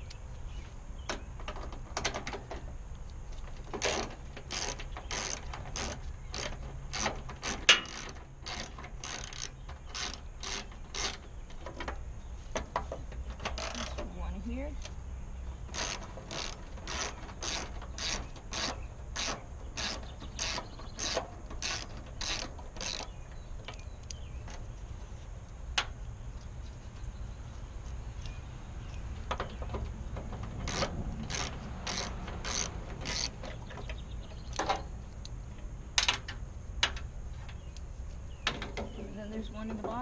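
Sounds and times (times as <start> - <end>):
ratchet wrench clicking: 15.7 - 23.1, 30.6 - 33.6.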